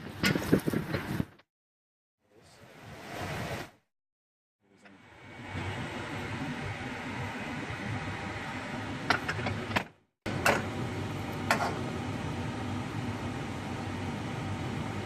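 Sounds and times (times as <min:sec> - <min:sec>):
steady mechanical hum: 0:04.6 - 0:15.0.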